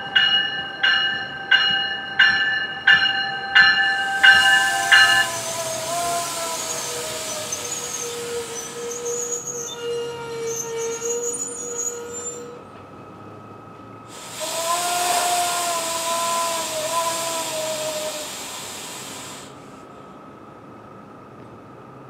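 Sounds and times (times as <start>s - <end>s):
train whine and squeal: 0.0s - 22.0s
hissing rush with humming tone: 3.9s - 9.5s, 14.1s - 19.8s.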